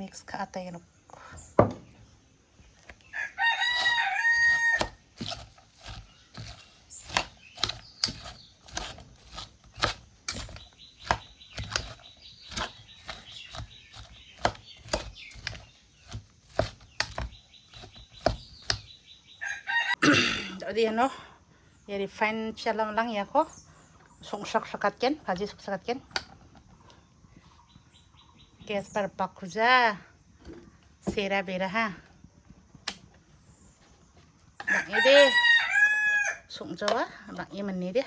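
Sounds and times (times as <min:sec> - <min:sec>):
rooster crowing: 0:03.1 - 0:05.0, 0:19.4 - 0:20.1, 0:34.6 - 0:36.5.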